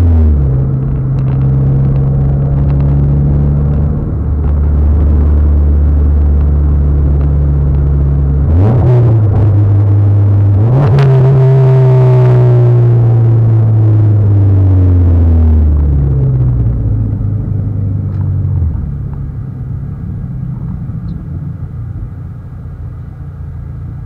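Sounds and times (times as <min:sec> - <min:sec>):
car engine droning: 0:00.0 - 0:24.0.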